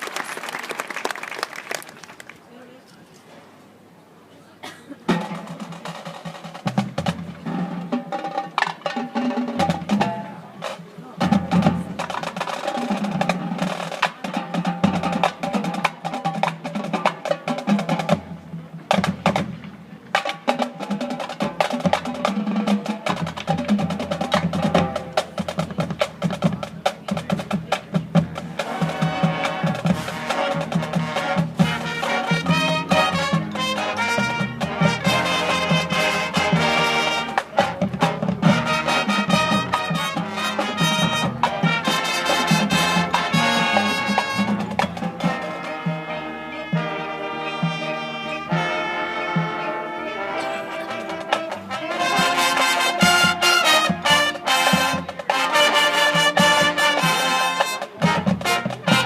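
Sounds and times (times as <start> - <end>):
rapid drum strokes: 5.1 - 46.2, 50.4 - 59.0.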